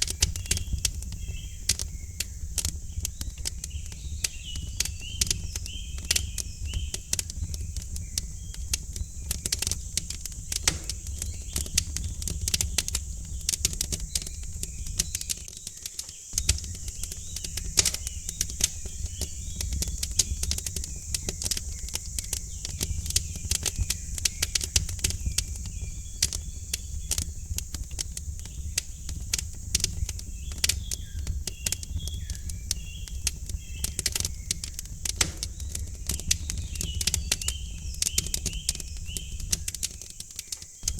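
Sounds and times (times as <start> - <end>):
faint bird chirps: 0.0 - 40.9
wood fire crackling: 0.0 - 40.9.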